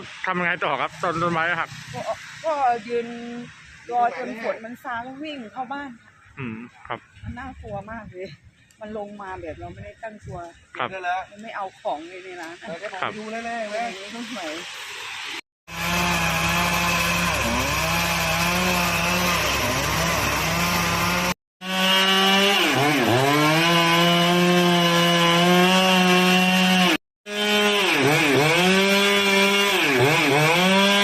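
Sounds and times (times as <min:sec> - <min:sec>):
chainsaw cutting wood: 0:15.7 - 0:31.0.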